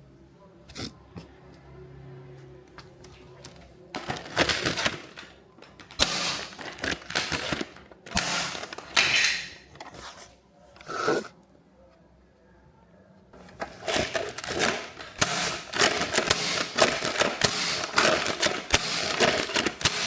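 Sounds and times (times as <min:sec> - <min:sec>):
plastic toys rustling and clattering: 0:02.8 - 0:11.0, 0:13.4 - 0:20.0.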